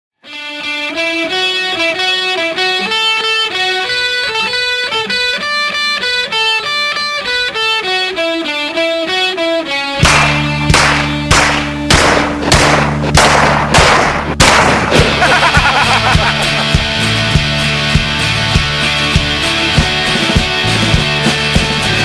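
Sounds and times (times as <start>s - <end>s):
clean electric guitar melody: 0.2s - 13.1s
held low chord: 7.8s - 14.5s
loud sharp hits: 10.0s - 16.8s.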